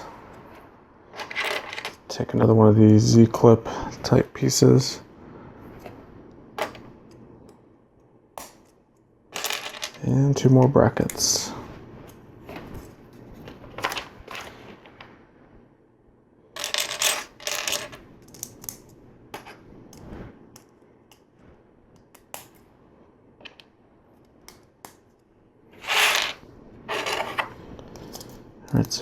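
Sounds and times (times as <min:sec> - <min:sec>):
loose plastic pieces rattling: 0:25.8 - 0:28.4.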